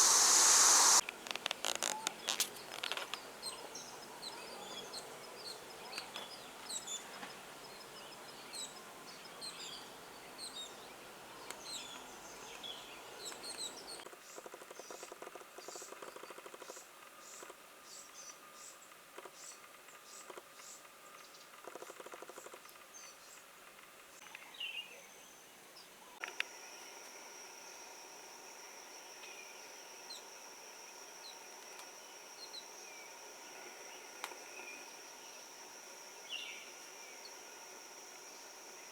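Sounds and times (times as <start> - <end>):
rapid pulsing: 0.0 - 1.0
small birds chirping: 0.0 - 1.0, 1.7 - 14.0, 31.2 - 37.4.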